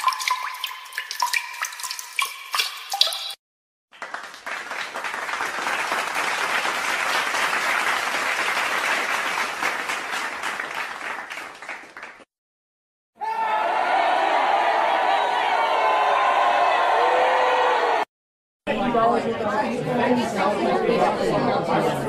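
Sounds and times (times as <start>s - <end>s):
water drips plinking: 0.0s - 3.4s
audience applause: 3.9s - 12.3s, 13.4s - 18.0s.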